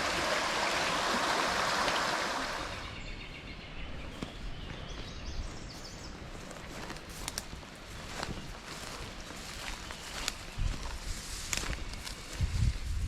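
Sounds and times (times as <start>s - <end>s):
creek water rushing over rocks: 0.0s - 2.9s
faint bird chirps: 7.9s - 11.0s.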